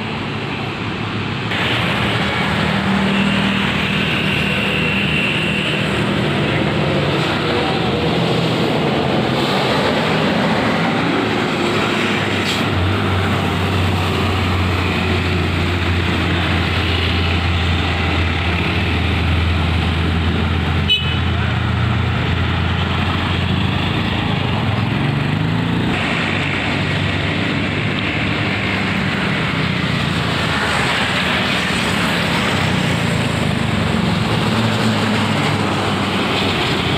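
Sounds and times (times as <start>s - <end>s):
heavy truck engine: 0.0s - 36.9s
road noise: 0.0s - 36.9s.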